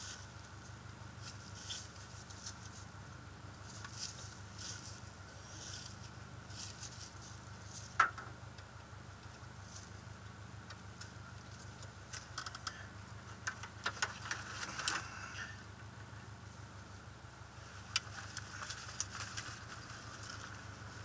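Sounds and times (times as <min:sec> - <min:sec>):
car engine idling: 0:00.0 - 0:21.0
light clicks and taps: 0:10.2 - 0:15.0.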